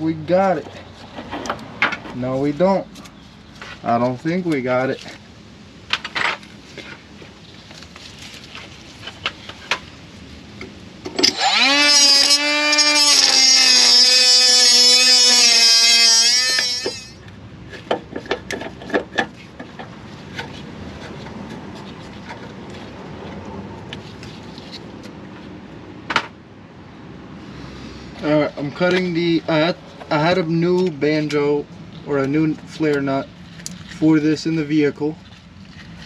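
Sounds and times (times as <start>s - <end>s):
power tool whining: 11.2s - 17.2s
tool handling clicks and knocks: 16.5s - 21.4s.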